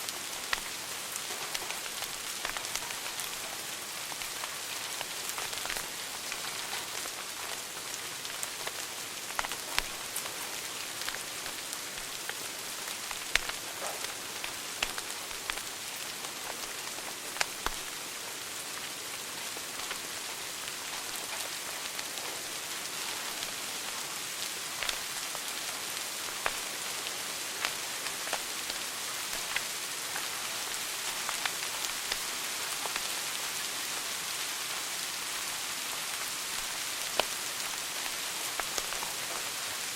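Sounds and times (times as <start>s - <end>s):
fire crackles and pops: 0.0s - 39.9s
wood fire hissing: 0.0s - 39.9s.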